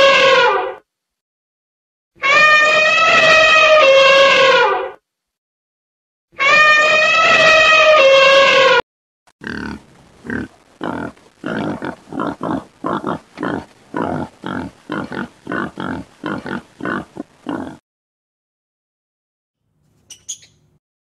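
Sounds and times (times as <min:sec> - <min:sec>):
animal grunting calls: 0:09.4 - 0:17.8.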